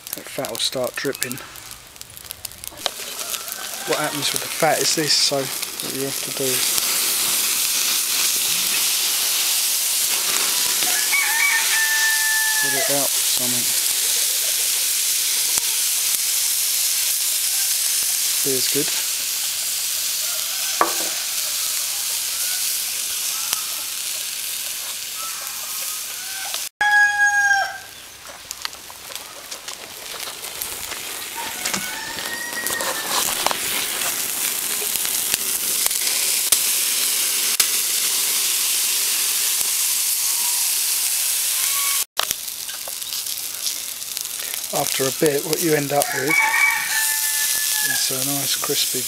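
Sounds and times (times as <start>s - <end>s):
fat sizzling on charcoal: 0.0s - 49.0s
faint fowl calls: 3.0s - 4.4s, 20.0s - 28.0s, 31.4s - 33.3s
rooster crowing: 3.0s - 4.4s, 10.8s - 13.1s, 20.0s - 24.1s, 25.1s - 28.0s, 31.3s - 33.4s, 40.2s - 40.8s, 46.0s - 48.2s.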